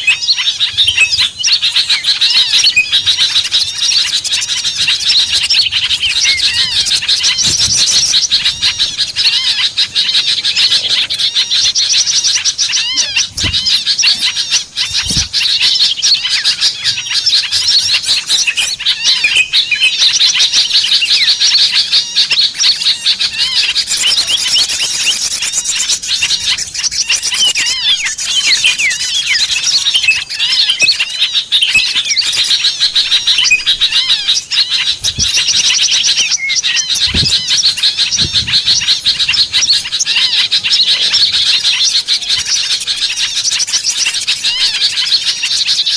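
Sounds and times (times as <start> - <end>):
songbirds chirping and twittering: 0.0 - 45.9.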